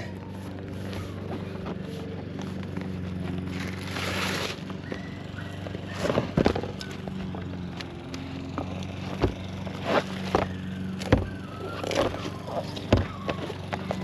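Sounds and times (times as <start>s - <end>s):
membrane rustling and tearing: 3.5s - 4.7s.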